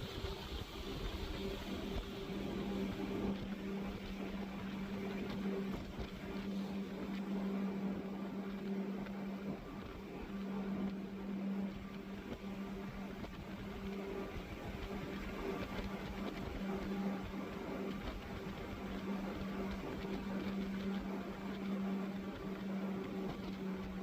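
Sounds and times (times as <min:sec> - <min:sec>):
rushing water wash: 0:00.0 - 0:07.2
boat engines droning: 0:00.0 - 0:24.0.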